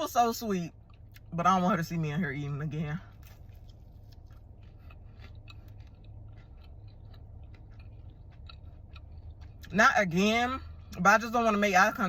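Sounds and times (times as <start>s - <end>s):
chewing mouth clicks: 3.2s - 9.8s.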